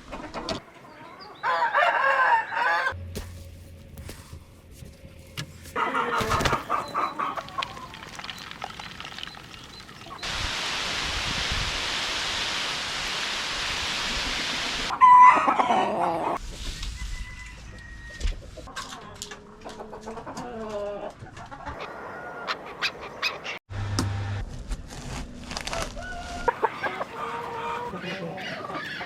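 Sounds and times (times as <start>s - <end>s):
chickens calling: 5.4s - 8.1s, 14.8s - 16.4s, 17.7s - 23.6s, 26.1s - 29.0s.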